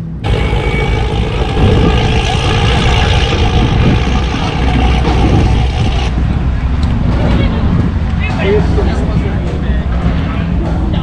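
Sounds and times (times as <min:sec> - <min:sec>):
rushing noise: 0:00.0 - 0:07.1
car engine at speed: 0:00.1 - 0:06.3.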